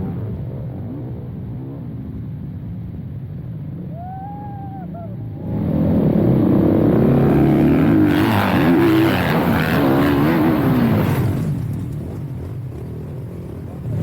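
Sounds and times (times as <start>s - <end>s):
dirt bike engine revving: 5.5s - 14.0s.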